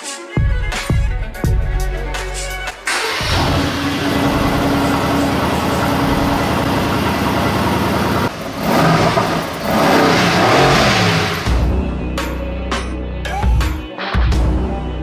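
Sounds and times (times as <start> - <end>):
car engine running and revving: 3.1 - 11.8.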